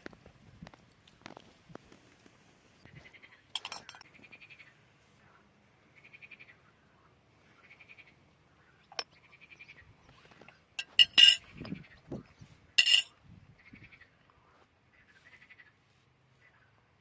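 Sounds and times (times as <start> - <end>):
utensils clinking together: 3.6 - 4.0, 10.8 - 11.5, 12.8 - 13.1.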